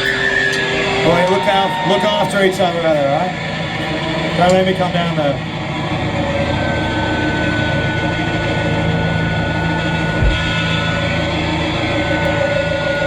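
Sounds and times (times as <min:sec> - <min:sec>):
distorted guitars droning: 0:00.0 - 0:13.0
high feedback whine: 0:00.0 - 0:13.0
low thump: 0:10.2 - 0:10.5.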